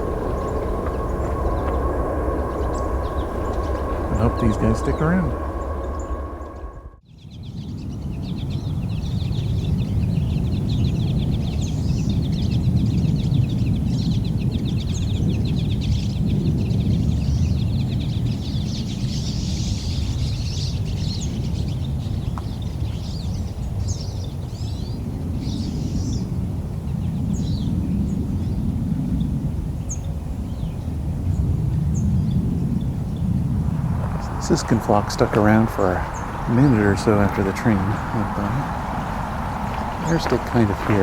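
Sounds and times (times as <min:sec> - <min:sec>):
train rumbling: 0:00.0 - 0:07.0, 0:33.1 - 0:41.0
birds twittering and singing: 0:00.0 - 0:28.7, 0:32.0 - 0:41.0.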